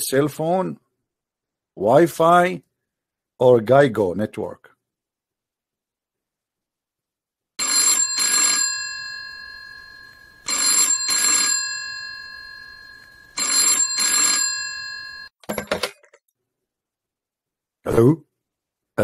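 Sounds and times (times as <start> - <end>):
telephone ringing: 7.6 - 16.2
phone handset clatter: 15.4 - 16.2.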